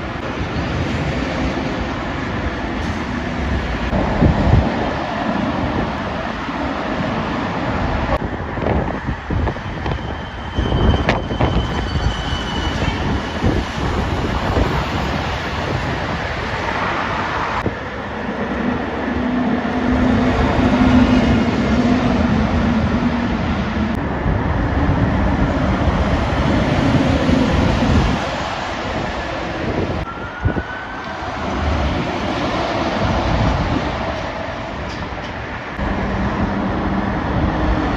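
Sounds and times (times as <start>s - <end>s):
heavy lorries passing: 13.0s - 37.9s.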